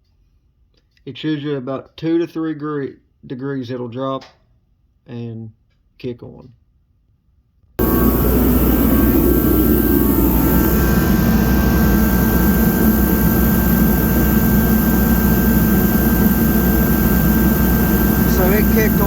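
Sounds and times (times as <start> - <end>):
faint whine: 7.8 - 19.0
forced-air heater running: 7.8 - 19.0.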